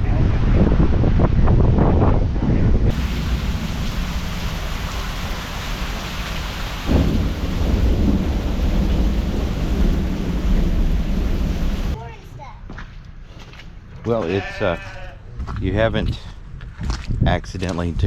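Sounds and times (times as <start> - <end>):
thunder crack and rumble: 0.6 - 12.0
heavy rain falling: 2.9 - 12.0.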